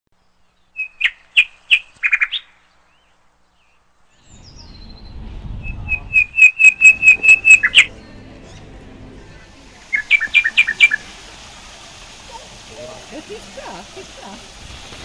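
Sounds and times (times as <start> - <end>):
small bird chirping: 0.2 - 8.7
low outdoor rumble: 4.2 - 15.0.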